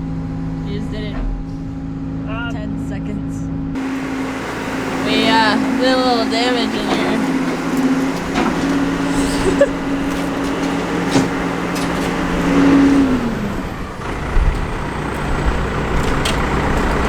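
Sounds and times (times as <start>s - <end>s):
tractor engine running: 3.8s - 17.0s.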